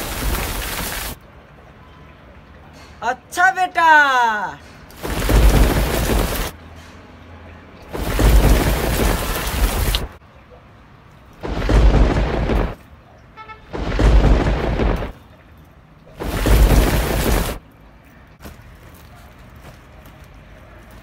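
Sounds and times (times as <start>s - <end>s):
heavy rain: 0.0s - 1.2s, 4.9s - 6.6s, 7.8s - 10.2s, 11.4s - 15.3s, 16.1s - 17.6s
thunder rumble: 5.0s - 6.5s, 7.8s - 10.2s, 11.4s - 12.8s, 13.6s - 15.2s, 16.1s - 17.6s.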